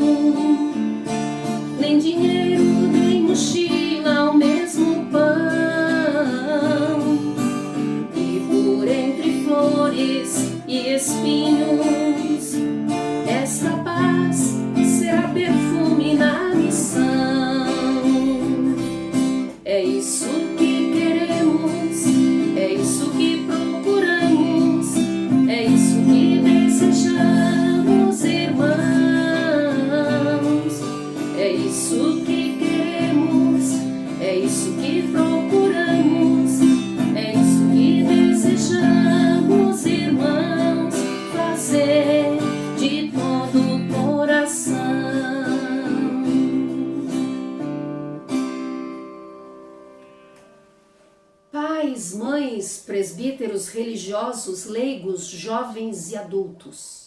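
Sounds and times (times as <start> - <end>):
woman singing: 0.0 - 47.6, 51.6 - 57.0
acoustic guitar strumming: 0.0 - 51.6.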